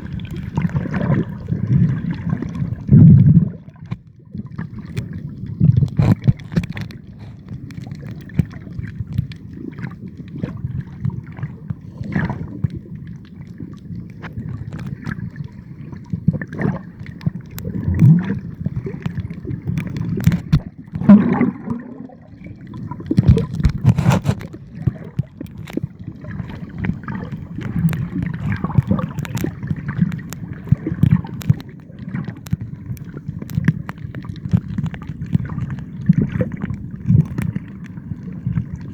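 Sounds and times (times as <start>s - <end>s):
water sloshing and gurgling: 0.0s - 38.9s
knocks and splashes: 17.7s - 22.2s, 23.0s - 25.8s.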